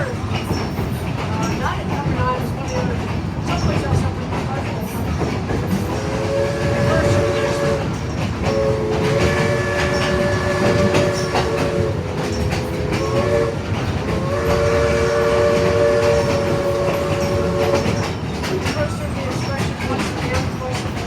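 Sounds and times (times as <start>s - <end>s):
train cars rumbling on rails: 0.0s - 21.0s
steam locomotive whistle blasts: 6.0s - 18.1s.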